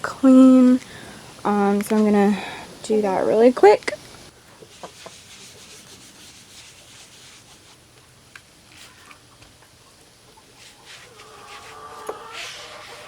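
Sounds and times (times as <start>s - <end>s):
cloth rubbing on leather: 4.7s - 7.8s.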